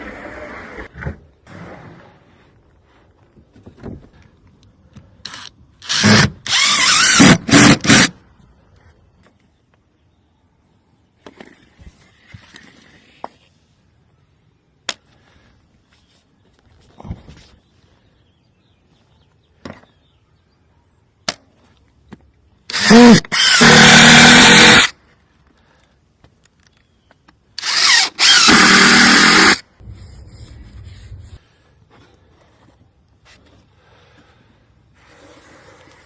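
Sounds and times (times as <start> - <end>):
power drill running: 5.3 - 8.1, 22.7 - 24.9, 27.6 - 29.6.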